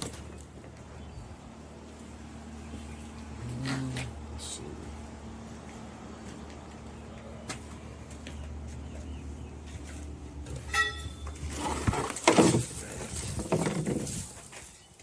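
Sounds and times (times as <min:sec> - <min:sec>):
steady low hum: 0:00.1 - 0:11.5
knocks of junk: 0:10.6 - 0:14.4.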